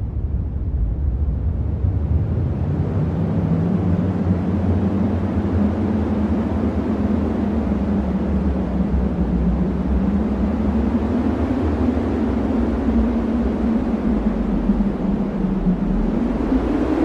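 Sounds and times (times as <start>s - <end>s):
deep rumbling wind: 0.0s - 17.0s.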